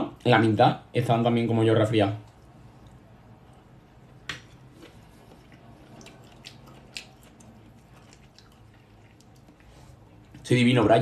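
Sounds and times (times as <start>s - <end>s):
person chewing: 2.3s - 10.4s.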